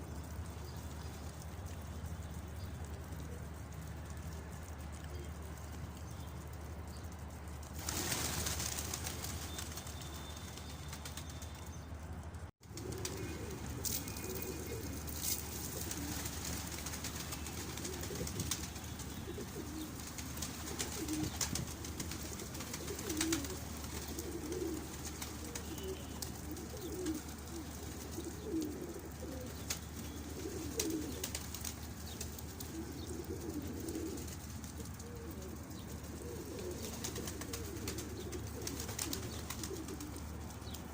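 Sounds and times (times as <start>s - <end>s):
pigeons cooing: 12.6s - 40.9s.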